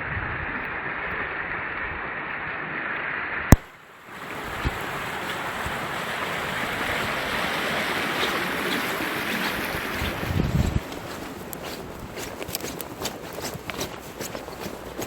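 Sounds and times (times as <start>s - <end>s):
river water rushing: 3.6s - 15.0s
wind buffeting microphone: 4.1s - 15.0s.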